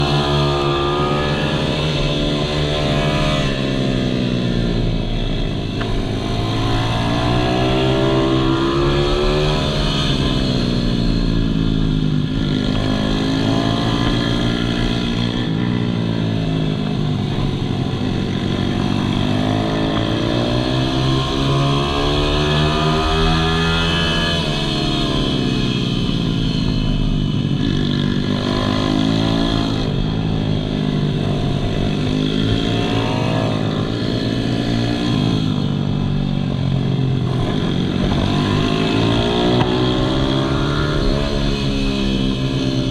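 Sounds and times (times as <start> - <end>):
pit bike engine revving: 12.2 - 42.9.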